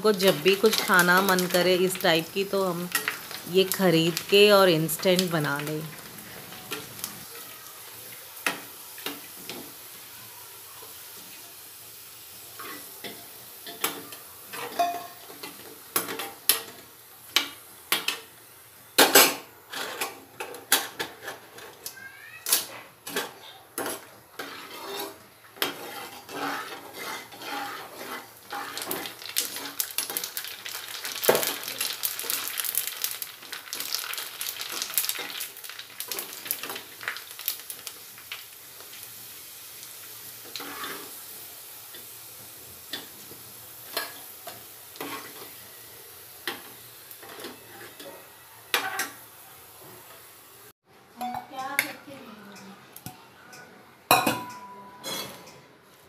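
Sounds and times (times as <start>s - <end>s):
frying in hot oil: 0.0s - 55.5s
metal spoon clinking on pan: 13.1s - 15.4s, 54.1s - 55.6s.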